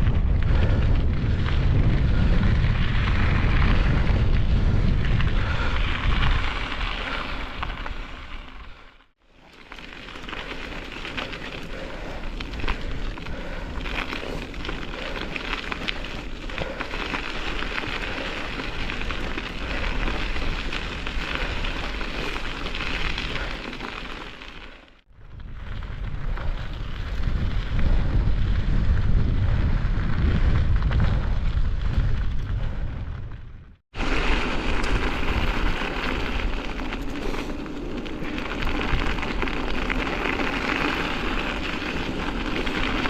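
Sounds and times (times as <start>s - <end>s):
wind buffeting microphone: 0.0s - 8.8s, 25.1s - 43.0s.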